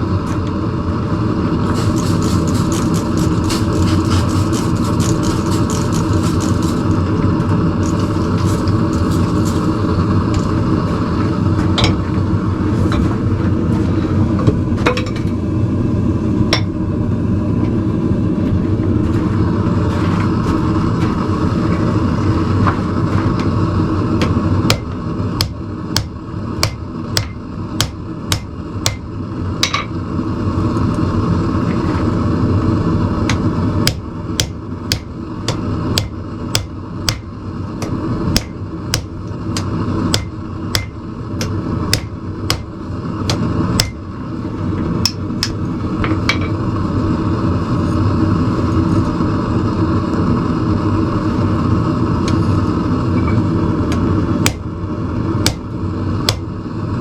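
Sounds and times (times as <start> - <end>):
forge roaring: 0.0 - 57.0
hammer striking steel on anvil: 24.2 - 29.0, 29.6 - 29.9, 33.3 - 42.7, 43.3 - 44.0.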